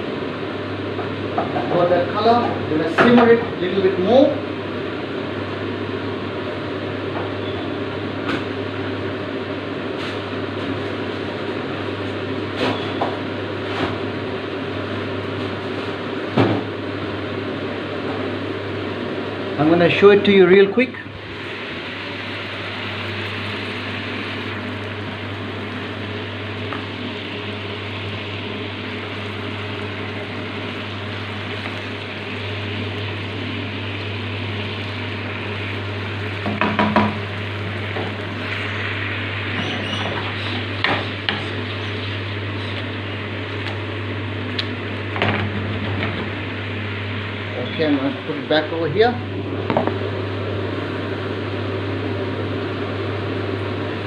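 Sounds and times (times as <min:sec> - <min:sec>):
food sizzling in a pan: 0:21.2 - 0:43.8.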